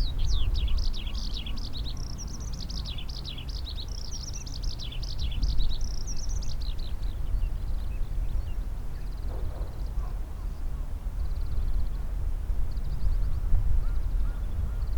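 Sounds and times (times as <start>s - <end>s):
songbird chirping: 0.0s - 10.7s
steady low rumble: 9.1s - 14.9s.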